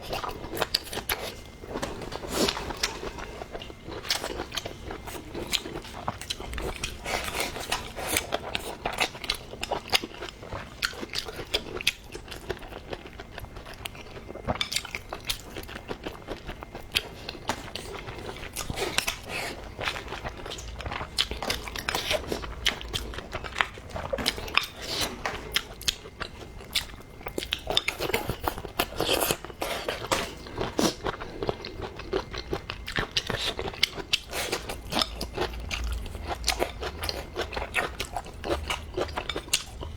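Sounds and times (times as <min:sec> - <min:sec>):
person chewing food: 0:00.0 - 0:39.9.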